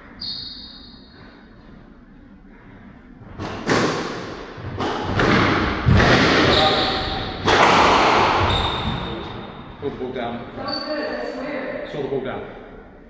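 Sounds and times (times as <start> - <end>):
squash ball impacts echoing: 2.7 - 11.2.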